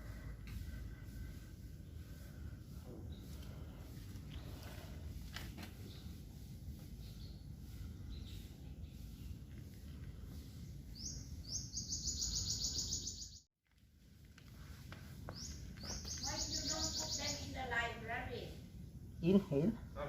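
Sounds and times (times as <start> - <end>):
bird rapid high trill: 11.0 - 13.4, 15.9 - 17.5
low steady background rumble: 13.7 - 20.0.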